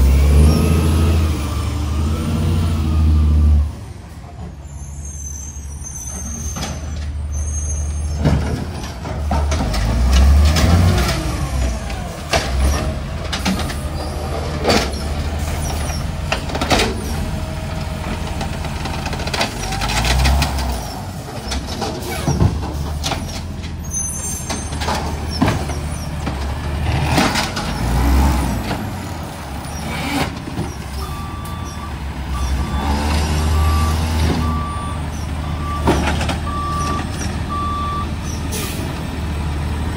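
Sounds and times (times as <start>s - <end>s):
diesel engine running under load: 8.0s - 39.9s
reversing beeper: 31.0s - 38.2s.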